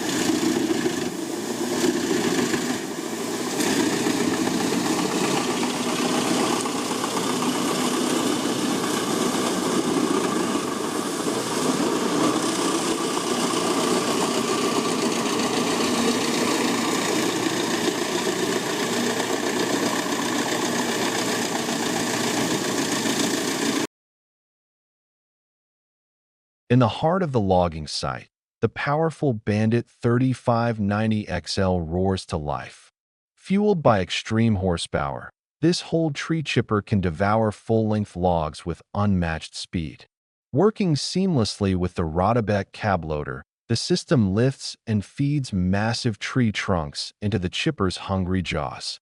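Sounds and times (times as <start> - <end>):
wood chipper engine droning: 0.0 - 23.9.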